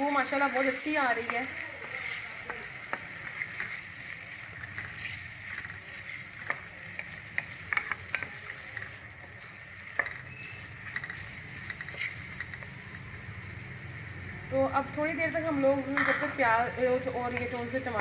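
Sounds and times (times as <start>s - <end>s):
vegetables sizzling in oil: 0.0s - 18.0s
wooden spoon tapping and scraping pot: 1.2s - 3.8s, 6.4s - 12.7s.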